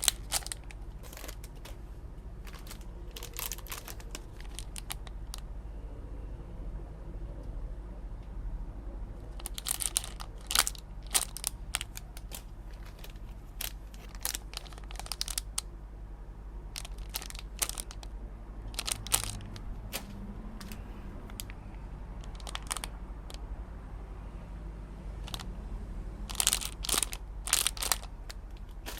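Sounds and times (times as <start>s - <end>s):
packaging crinkling: 0.0s - 5.4s, 9.3s - 15.7s, 16.7s - 18.1s, 18.7s - 21.6s, 22.2s - 23.4s, 25.2s - 25.5s, 26.3s - 28.9s
steady low hum: 0.0s - 28.9s.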